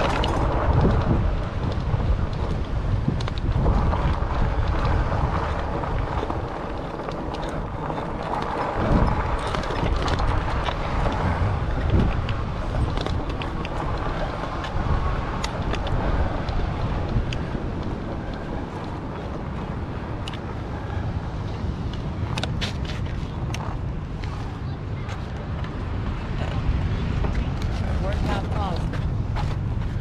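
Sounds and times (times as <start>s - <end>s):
small clicks and rattles: 0.0s - 19.3s
tyres rumbling on path: 0.0s - 30.0s
wind buffeting microphone: 0.0s - 30.0s.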